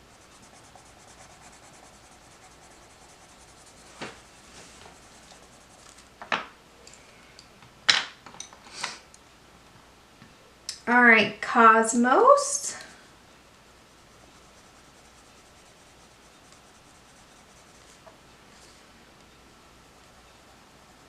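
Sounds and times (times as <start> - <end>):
pencil scratching on paper: 0.0 - 6.1, 13.9 - 18.0
paper rustling: 3.7 - 6.1.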